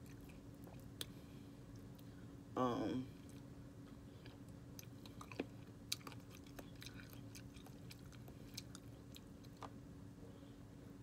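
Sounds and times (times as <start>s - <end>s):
faint steady hum: 0.0s - 11.0s
person chewing chicken wings: 3.2s - 9.8s.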